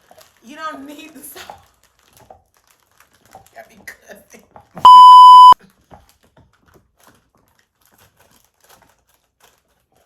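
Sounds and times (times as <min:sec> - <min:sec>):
censor bleep: 0:04.8 - 0:05.6.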